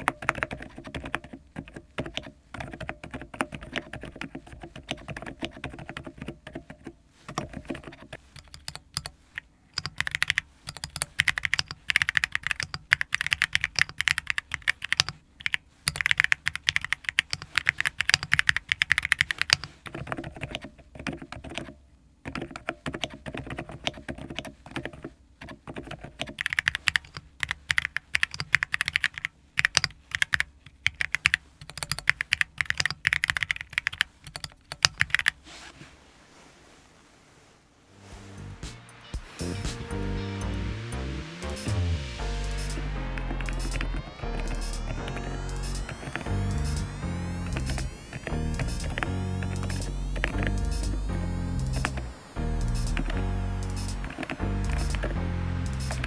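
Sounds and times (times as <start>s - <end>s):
mechanical keyboard key clacks: 9.8s - 21.7s.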